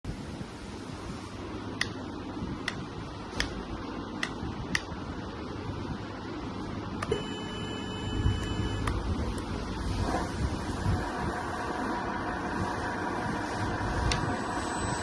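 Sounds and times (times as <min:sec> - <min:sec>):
low hum: 0:05.4 - 0:15.0
steady electronic tone: 0:07.0 - 0:15.0
low rumble: 0:08.1 - 0:15.0.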